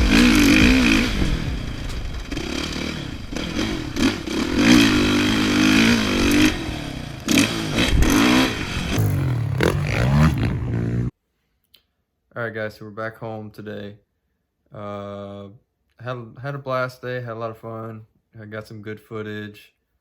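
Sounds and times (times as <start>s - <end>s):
dirt bike engine revving: 0.0s - 11.1s.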